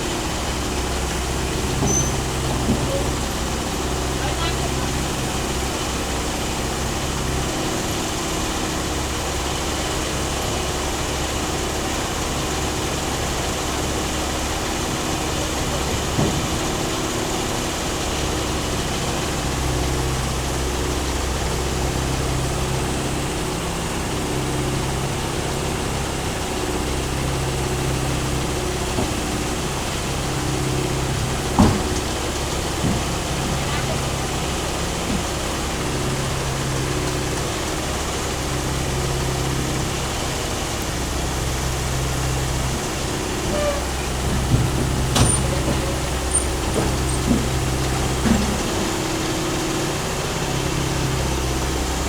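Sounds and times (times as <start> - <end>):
excavator diesel engine running: 0.0 - 52.0
knocks: 31.0 - 34.2.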